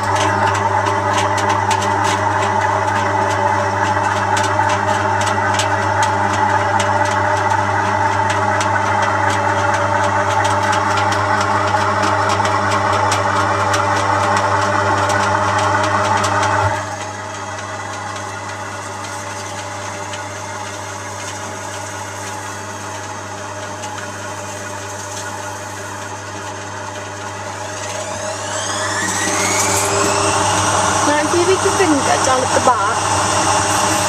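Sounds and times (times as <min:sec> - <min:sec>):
washing machine running: 0:00.0 - 0:34.0
motor whine rising: 0:27.2 - 0:34.0.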